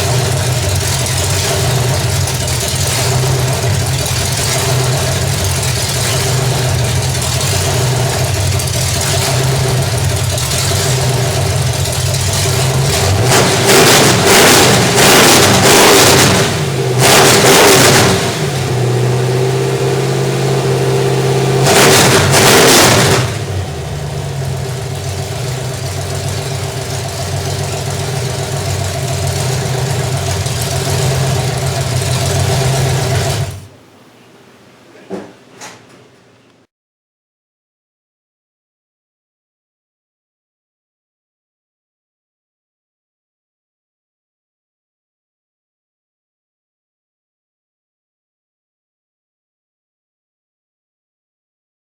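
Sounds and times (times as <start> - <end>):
car engine idling and revving: 0.0 - 33.7.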